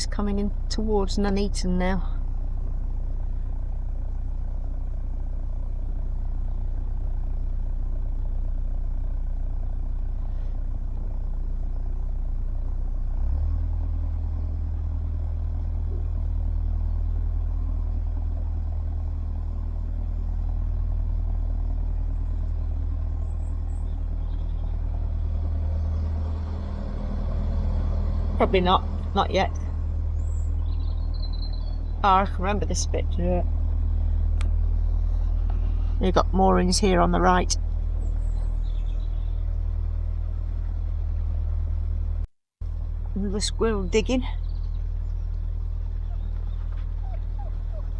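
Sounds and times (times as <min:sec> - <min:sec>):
boat engine humming: 0:00.0 - 0:47.9.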